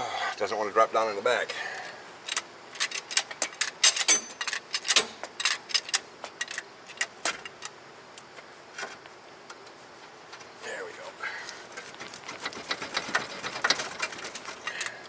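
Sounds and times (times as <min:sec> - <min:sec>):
metallic clicks and clinks: 0:02.2 - 0:07.8.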